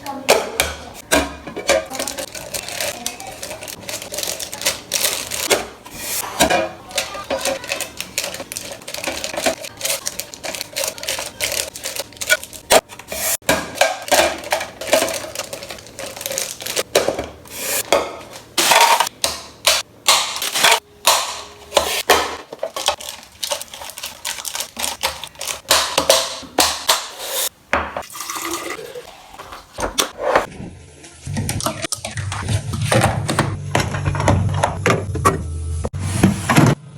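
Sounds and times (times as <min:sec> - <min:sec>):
items clattering set down: 0:00.2 - 0:27.1
crinkly wrapper rustling: 0:01.9 - 0:05.5, 0:06.9 - 0:13.1, 0:14.0 - 0:16.9, 0:22.5 - 0:25.8.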